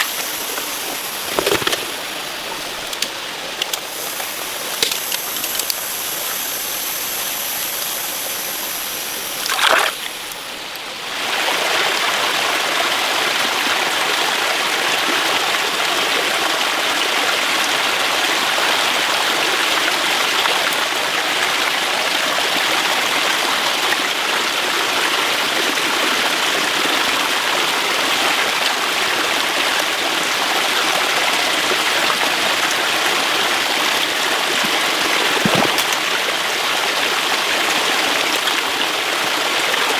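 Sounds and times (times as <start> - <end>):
faint high steady tones: 0.0 - 10.8
rushing flowing water: 0.0 - 13.7, 31.0 - 39.9.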